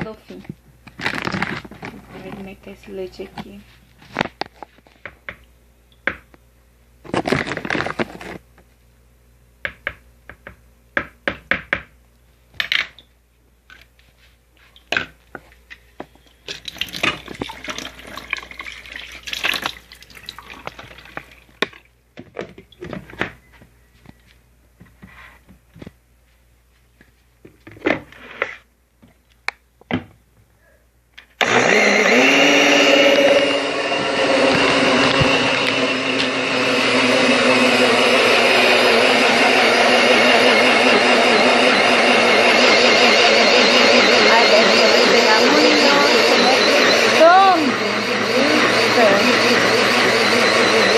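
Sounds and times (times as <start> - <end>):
blender motor running: 31.4 - 50.9.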